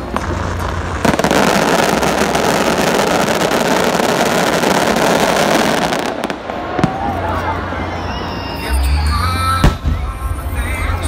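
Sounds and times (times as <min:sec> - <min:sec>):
fireworks crackling: 0:00.0 - 0:08.5.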